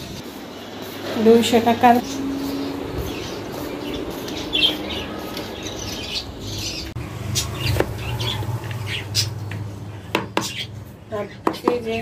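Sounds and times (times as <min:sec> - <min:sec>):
budgerigars chirping: 0:01.2 - 0:09.5, 0:10.2 - 0:12.0
low hum: 0:02.1 - 0:11.1.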